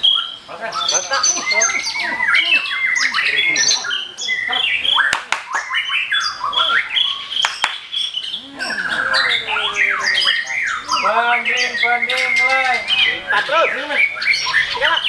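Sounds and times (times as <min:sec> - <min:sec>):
songbirds singing: 0:00.0 - 0:15.0
sharp clicks: 0:05.1 - 0:05.6, 0:07.4 - 0:07.9.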